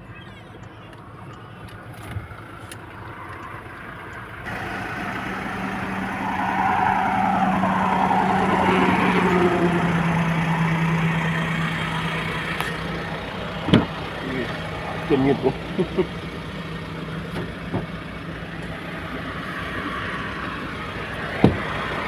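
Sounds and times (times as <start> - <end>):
vehicle engine driving by: 4.4 - 18.6.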